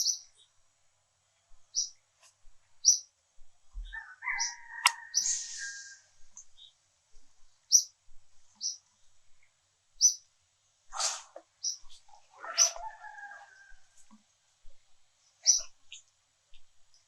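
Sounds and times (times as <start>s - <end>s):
bird chirping: 0.0s - 0.5s, 1.7s - 2.0s, 2.8s - 3.1s, 3.8s - 6.8s, 7.7s - 7.9s, 8.6s - 8.8s, 10.0s - 10.2s, 11.6s - 12.8s, 15.4s - 16.1s.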